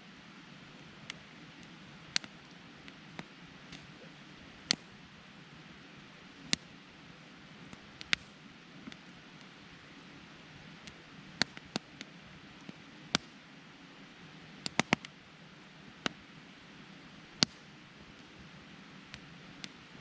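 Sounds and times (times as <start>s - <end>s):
campfire crackling and popping: 0.6s - 13.5s, 14.1s - 20.0s
fire hissing: 0.8s - 13.2s.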